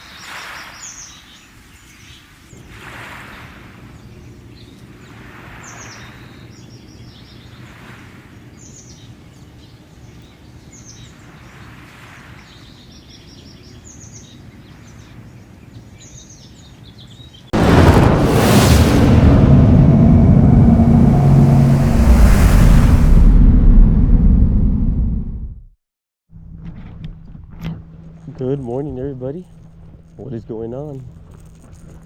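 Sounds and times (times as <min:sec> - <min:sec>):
soft swells of rushing noise: 0:17.6 - 0:25.4
loud rushing noise: 0:17.6 - 0:25.6
low steady rumble: 0:17.6 - 0:25.7.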